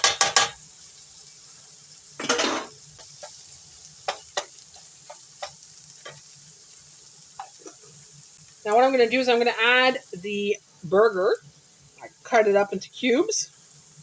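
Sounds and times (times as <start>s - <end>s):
utensil tapping a pan: 0.0s - 0.6s, 4.1s - 6.3s
vegetables sizzling in a frying pan: 0.0s - 14.0s.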